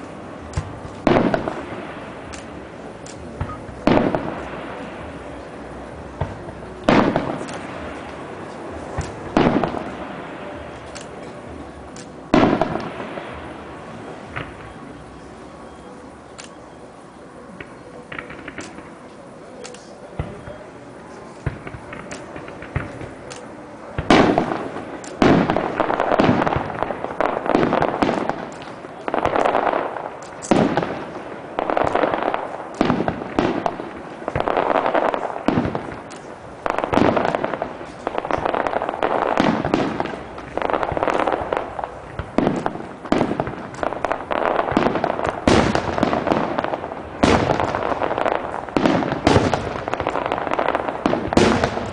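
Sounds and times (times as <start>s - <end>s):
firework crackle: 0.0s - 51.9s
faint firework pops: 0.4s - 1.6s, 8.9s - 10.0s, 31.7s - 51.9s.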